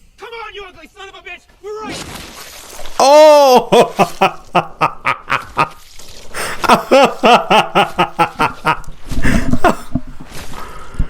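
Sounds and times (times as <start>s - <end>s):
person laughing: 3.0s - 5.8s, 6.4s - 10.0s.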